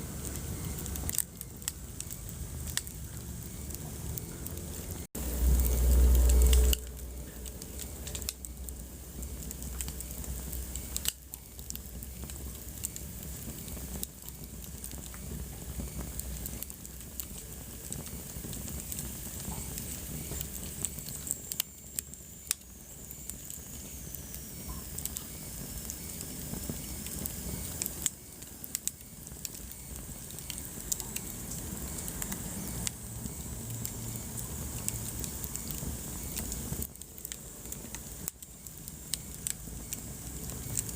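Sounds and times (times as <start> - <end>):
wood fire crackling and popping: 0.0 - 40.9
faint high whistle: 32.4 - 34.4.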